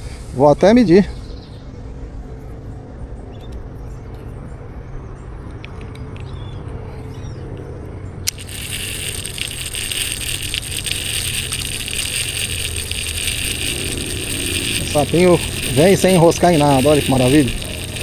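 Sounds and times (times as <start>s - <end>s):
fishing reel click: 8.3s - 18.0s
fishing reel whirring and ticking: 8.3s - 18.0s.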